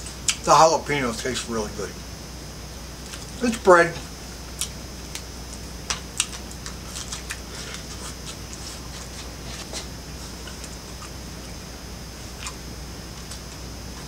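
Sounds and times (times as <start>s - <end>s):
man chewing food: 2.8s - 3.4s, 4.0s - 14.0s
wet mouth clicks and smacks: 5.9s - 7.4s.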